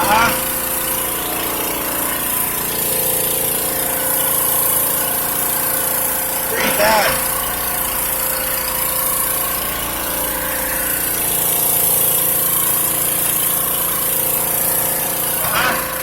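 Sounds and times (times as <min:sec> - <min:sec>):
drain-cleaning machine droning: 0:00.0 - 0:16.0.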